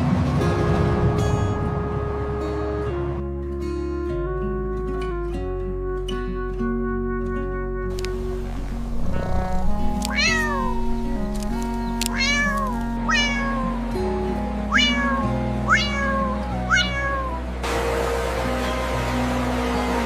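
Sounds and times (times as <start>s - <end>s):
background music with held notes: 0.0s - 20.0s
cat meowing: 9.2s - 13.8s, 14.7s - 17.4s.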